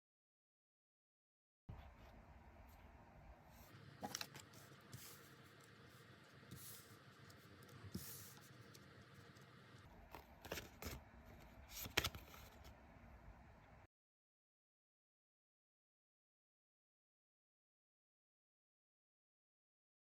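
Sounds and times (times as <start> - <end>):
cards sliding and laid down: 10.1 - 12.8.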